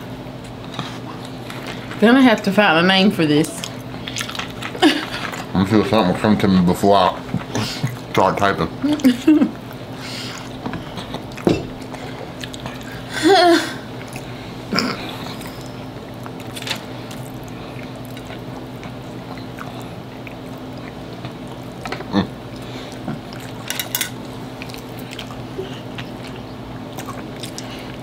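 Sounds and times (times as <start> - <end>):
steady low hum: 0.0 - 28.0
wet chewing: 3.4 - 13.1, 13.9 - 28.0
forks clicking on plate: 23.7 - 24.2.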